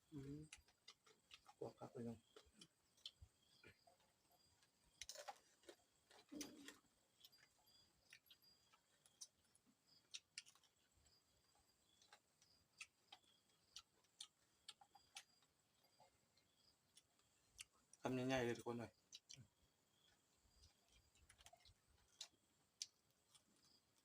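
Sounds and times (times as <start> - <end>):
person chewing crispy food: 0.0 - 18.0, 18.9 - 24.0.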